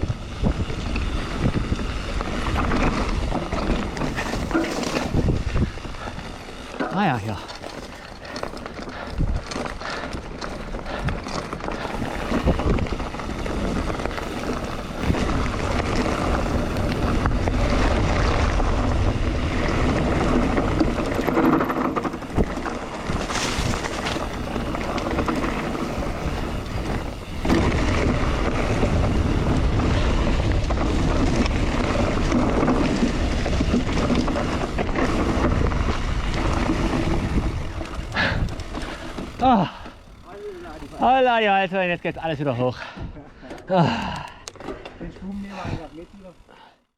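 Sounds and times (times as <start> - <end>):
wind rushing over microphone: 0.0 - 7.5, 8.2 - 39.8
bike tyres rumbling and rattling: 0.0 - 46.9.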